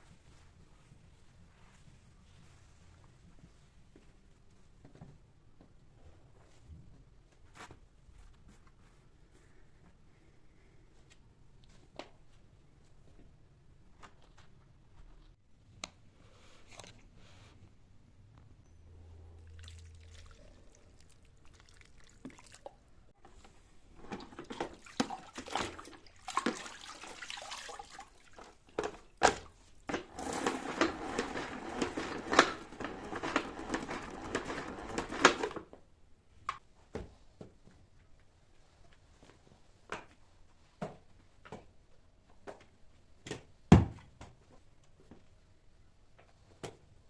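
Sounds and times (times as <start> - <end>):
water running and splashing: 24.4 - 28.6.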